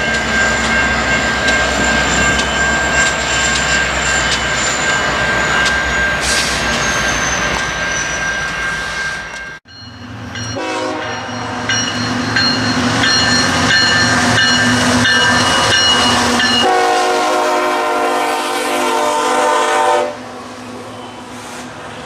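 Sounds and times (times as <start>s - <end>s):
train running noise: 0.0s - 22.0s
locomotive horn blast: 10.6s - 11.3s, 16.6s - 20.3s.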